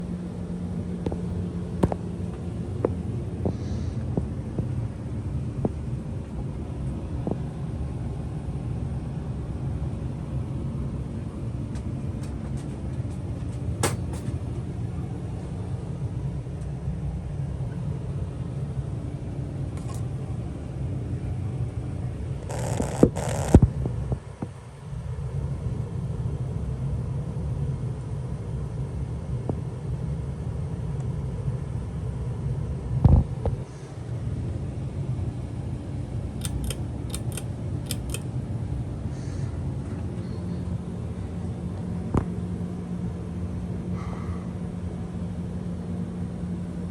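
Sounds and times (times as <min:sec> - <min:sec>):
ceiling fan rumbling: 0:00.0 - 0:46.9
air moving over microphone: 0:01.8 - 0:07.7
light clicks: 0:36.4 - 0:38.3.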